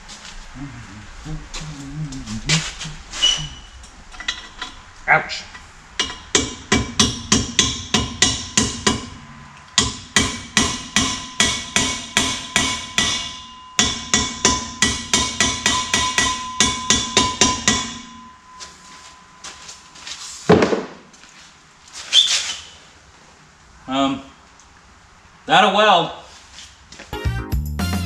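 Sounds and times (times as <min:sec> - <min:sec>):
hammer striking metal: 0:06.0 - 0:09.2, 0:09.8 - 0:18.4.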